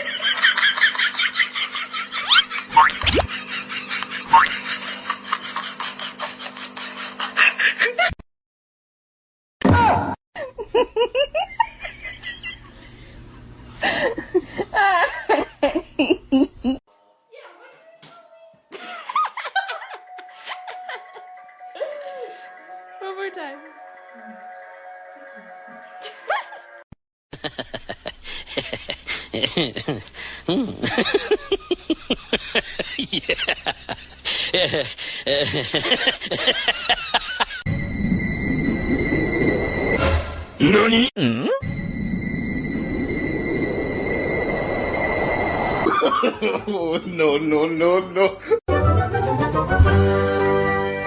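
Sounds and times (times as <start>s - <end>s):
person laughing: 0.0s - 8.2s, 13.8s - 16.8s, 18.7s - 22.6s, 26.0s - 26.8s, 27.4s - 37.6s, 45.9s - 48.6s.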